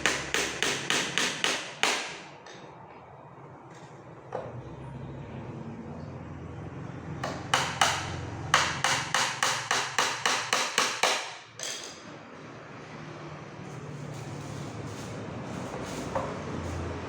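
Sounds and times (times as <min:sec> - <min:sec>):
hammer driving nails into wood: 0:00.0 - 0:02.3, 0:07.2 - 0:11.4.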